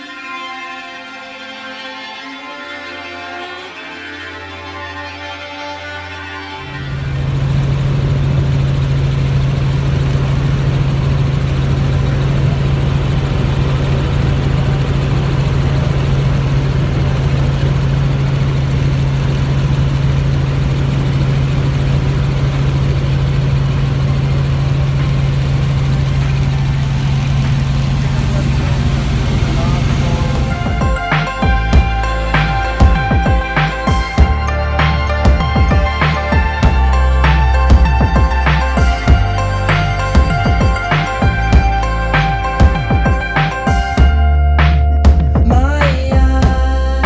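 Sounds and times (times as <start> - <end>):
helicopter engine and rotors drone: 6.6 - 44.1
constant rushing noise: 6.6 - 44.2.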